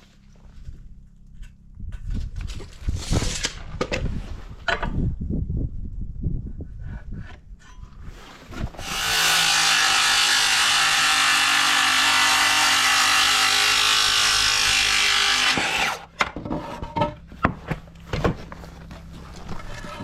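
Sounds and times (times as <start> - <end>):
electric saw cutting wood: 8.8 - 16.1.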